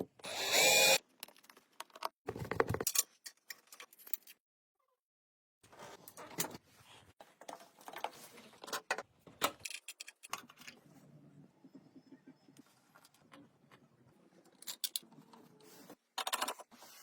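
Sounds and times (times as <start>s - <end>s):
clicks and scrapes on metal parts: 7.4s - 10.8s, 14.4s - 15.4s, 16.1s - 16.8s.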